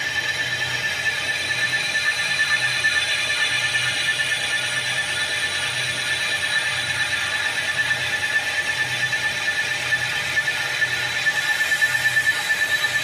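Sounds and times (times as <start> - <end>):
metal lathe whining: 0.0 - 13.0.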